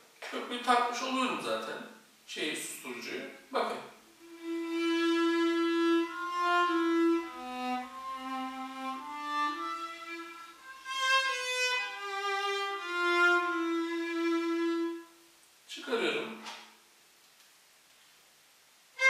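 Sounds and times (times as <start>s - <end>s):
muted violin playing held notes: 4.2s - 15.2s.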